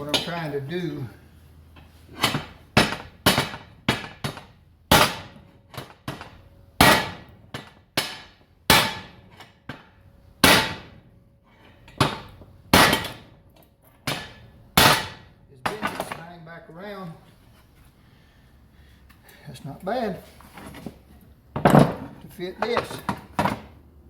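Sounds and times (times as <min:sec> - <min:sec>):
hammer striking steel: 0:02.2 - 0:10.9, 0:14.0 - 0:16.2.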